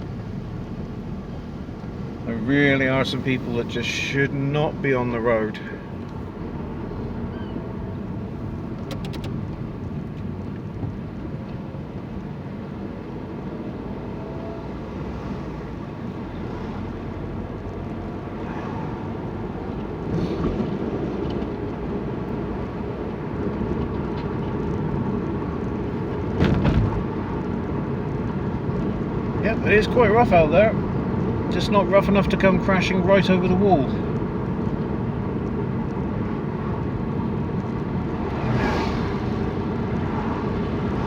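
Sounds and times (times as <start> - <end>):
car engine and road noise: 0.0 - 41.0.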